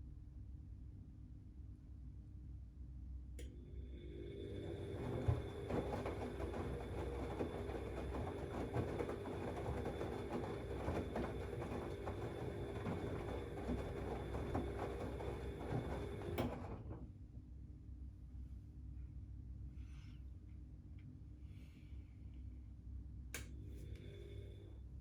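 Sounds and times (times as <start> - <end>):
washing machine low hum: 3.0 - 25.0
washing machine drum motor whine: 3.6 - 17.1.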